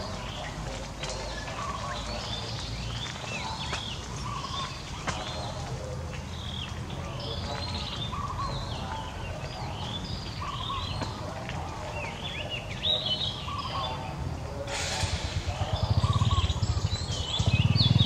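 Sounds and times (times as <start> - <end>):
birds chirping: 0.0 - 18.0
low rumble: 14.2 - 18.0.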